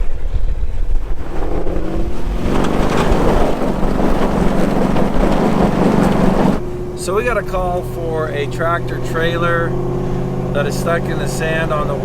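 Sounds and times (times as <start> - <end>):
road and wind rush: 0.0 - 12.0
vehicle engine accelerating: 0.0 - 12.0.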